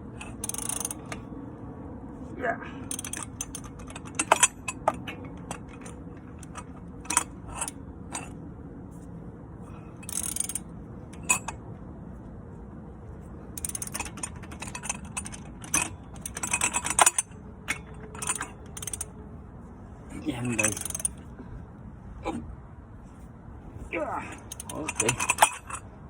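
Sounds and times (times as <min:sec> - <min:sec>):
rapid ratchet clicking: 0:00.2 - 0:01.2, 0:02.9 - 0:07.8, 0:10.0 - 0:11.6, 0:13.6 - 0:19.1, 0:20.6 - 0:21.2, 0:24.4 - 0:25.8
metallic tool clicks and knocks: 0:13.6 - 0:19.1, 0:20.6 - 0:21.2, 0:24.4 - 0:25.8.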